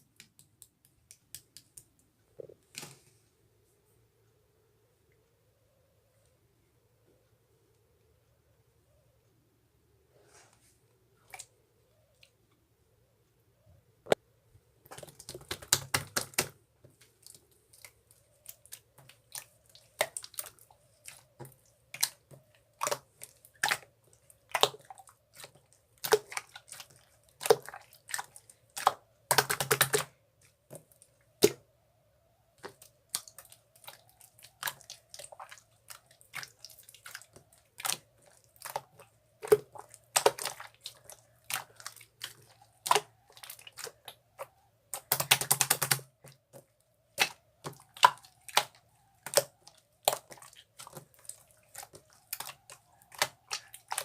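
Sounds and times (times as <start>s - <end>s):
faint steady hum: 0.0s - 54.0s
sharp clicks and taps: 45.0s - 46.6s.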